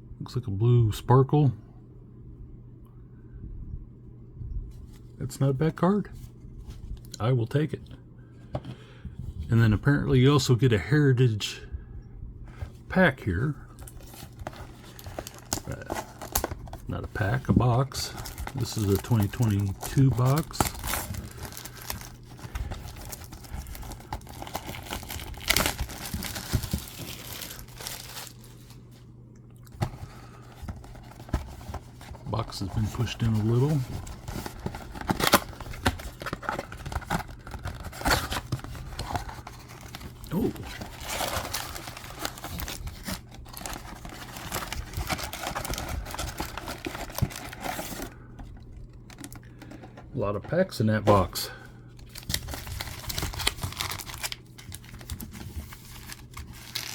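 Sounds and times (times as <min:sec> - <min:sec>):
packaging crinkling and tearing: 0:13.7 - 0:28.8, 0:29.7 - 0:50.0, 0:52.0 - 0:56.9.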